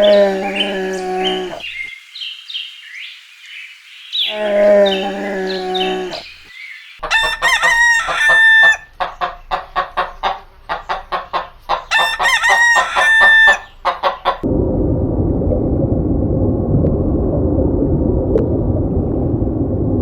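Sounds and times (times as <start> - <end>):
rooster crowing: 7.0 - 8.9, 11.9 - 13.7.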